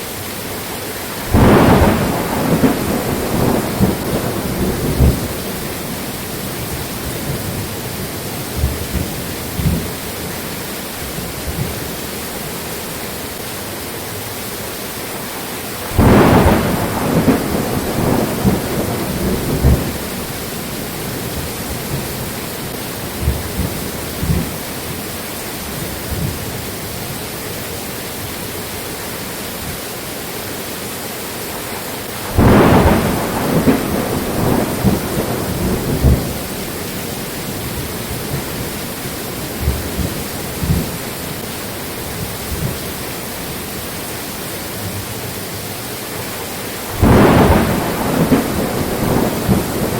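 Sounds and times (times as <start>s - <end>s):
rain falling: 0.0s - 49.9s
thunderclaps rumbling: 1.2s - 12.1s, 15.9s - 27.2s, 32.1s - 43.6s, 46.8s - 49.9s.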